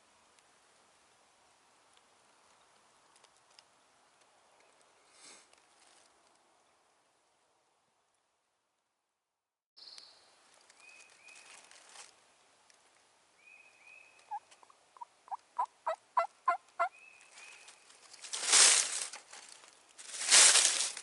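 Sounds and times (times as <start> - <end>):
small bird chirps: 9.8 - 11.6
wild turkey yelping: 14.2 - 17.0.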